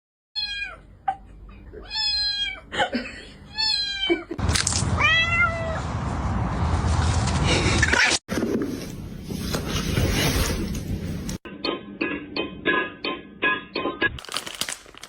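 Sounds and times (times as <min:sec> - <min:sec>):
cat meowing: 0:01.8 - 0:02.6, 0:03.5 - 0:04.2, 0:05.0 - 0:05.8.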